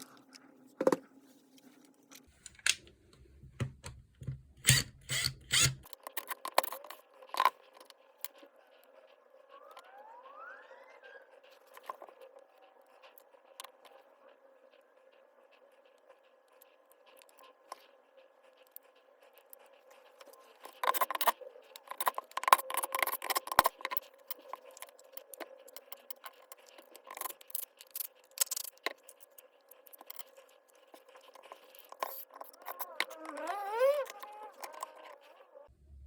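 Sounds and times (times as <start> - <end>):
hard objects clicking and rattling: 20.1 - 35.4.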